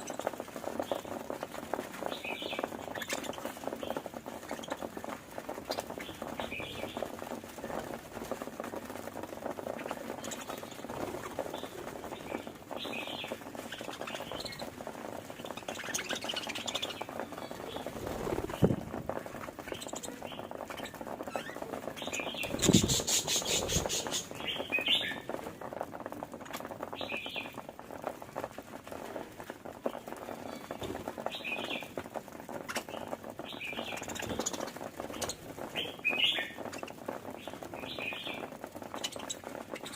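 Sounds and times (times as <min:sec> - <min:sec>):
budgerigars chattering and chirping: 0:22.1 - 0:25.3, 0:32.7 - 0:36.8.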